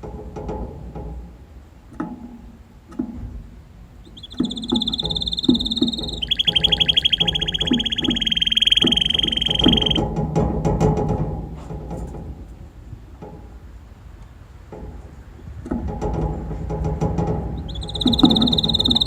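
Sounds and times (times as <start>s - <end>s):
canary singing trills: 4.0s - 10.0s, 17.5s - 19.0s.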